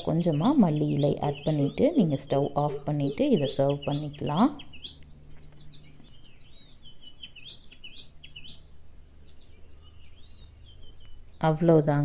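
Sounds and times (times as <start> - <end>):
faint low hum: 0.0 - 12.0
small birds chirping: 0.0 - 12.0.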